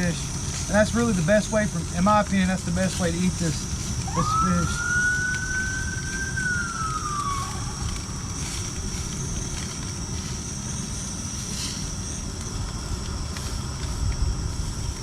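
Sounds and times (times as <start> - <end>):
steady low rumble: 0.0 - 15.0
distant siren wail: 1.7 - 12.0.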